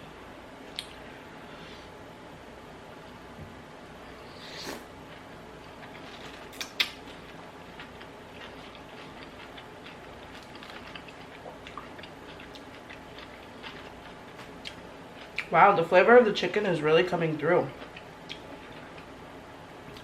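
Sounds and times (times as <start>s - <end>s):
close chewing with wet mouth clicks: 5.9s - 15.5s, 17.8s - 19.1s.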